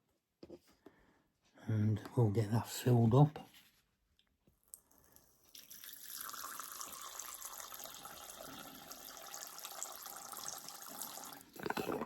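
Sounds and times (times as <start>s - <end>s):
water pouring into a dish: 4.7s - 12.0s.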